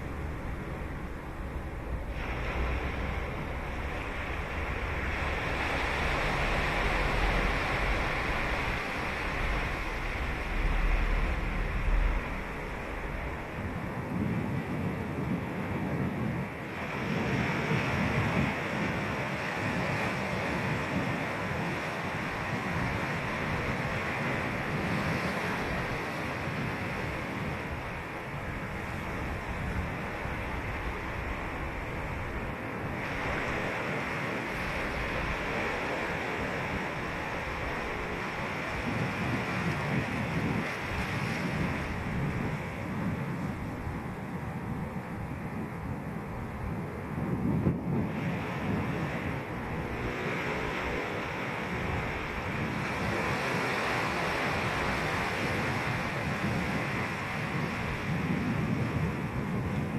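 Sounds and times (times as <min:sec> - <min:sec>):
ocean surf breaking: 0:00.0 - 0:59.9
wind rumble on microphone: 0:00.0 - 0:59.9.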